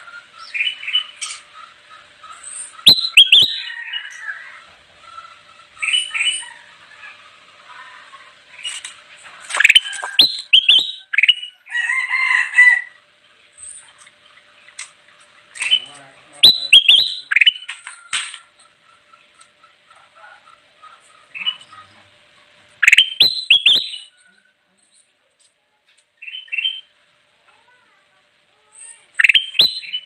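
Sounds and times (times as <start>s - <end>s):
bird singing chirps and whistles: 2.8s - 3.7s, 9.6s - 11.6s, 15.6s - 17.7s, 22.8s - 24.1s, 26.2s - 26.9s, 29.2s - 30.0s.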